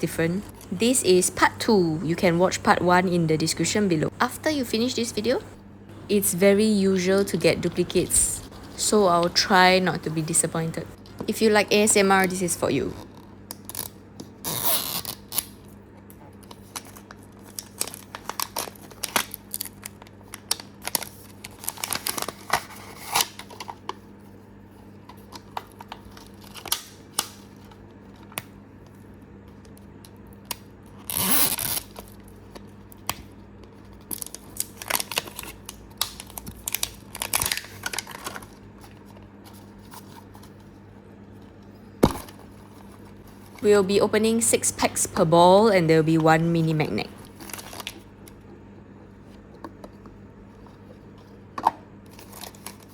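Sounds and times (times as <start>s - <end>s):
plastic packaging crinkling and tearing: 13.0s - 24.1s, 25.0s - 28.4s, 30.9s - 41.6s, 47.2s - 48.4s, 52.0s - 52.9s.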